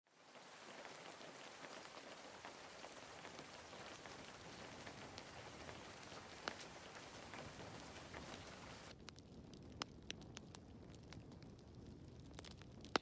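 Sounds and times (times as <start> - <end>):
wood fire crackling: 0.1 - 13.0.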